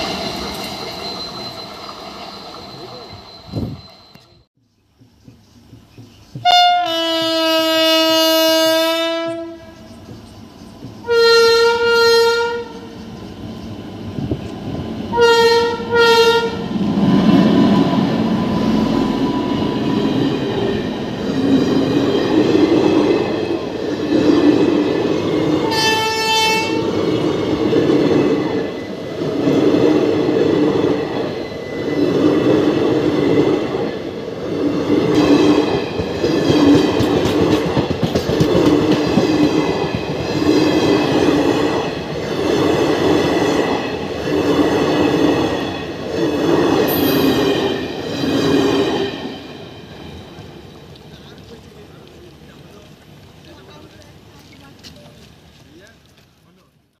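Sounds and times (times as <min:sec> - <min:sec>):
locomotive rushing past rumbling: 0:00.0 - 0:04.5, 0:07.2 - 0:54.4
locomotive horn blasts: 0:06.4 - 0:09.8, 0:11.0 - 0:12.9, 0:15.1 - 0:16.7, 0:25.7 - 0:26.9
wheels clacking over rail joints: 0:16.8 - 0:56.7.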